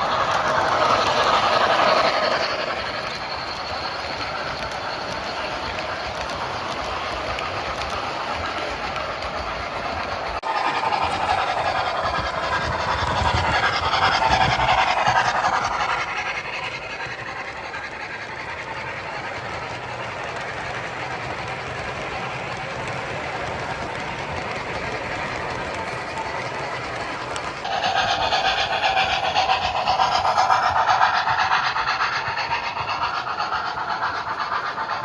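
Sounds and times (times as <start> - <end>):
train passing with clicking wheels: 0.0 - 35.0.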